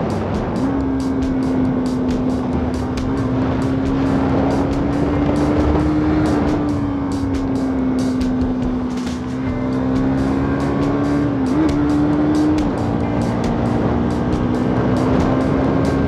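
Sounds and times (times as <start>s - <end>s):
wind buffeting microphone: 0.0s - 11.9s
motorcycle engine running: 0.0s - 16.0s.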